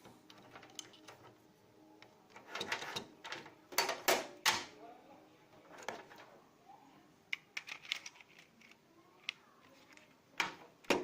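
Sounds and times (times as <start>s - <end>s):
light clicks and taps of plastic parts: 7.3s - 11.0s.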